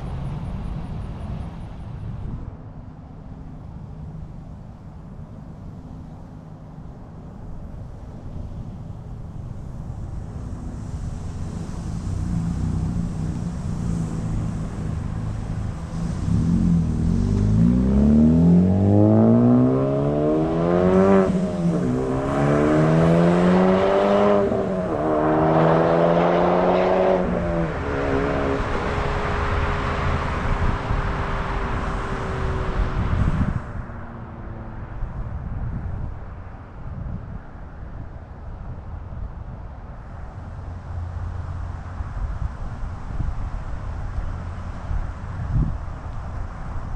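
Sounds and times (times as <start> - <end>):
car exhaust accelerating hard: 9.5 - 34.7.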